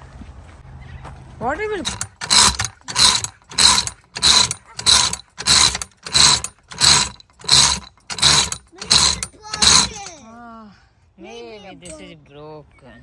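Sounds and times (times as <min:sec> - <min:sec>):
ratcheting scraping mechanism: 0:01.8 - 0:10.2.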